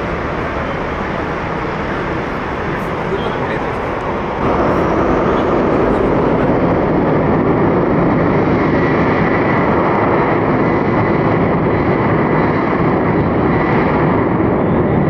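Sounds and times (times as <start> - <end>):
faint high whine: 0.0 - 9.7
jet engines running: 0.0 - 15.0.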